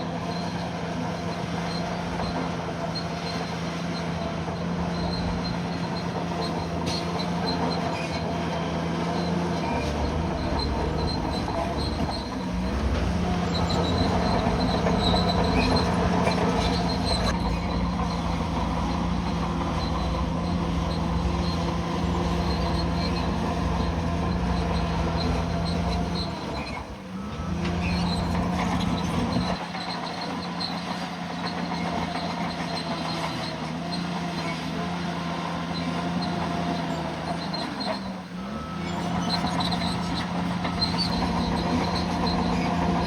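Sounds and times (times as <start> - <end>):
bulldozer diesel engine: 0.0 - 43.0
metallic track noise: 4.0 - 8.4, 9.2 - 29.6, 38.0 - 43.0.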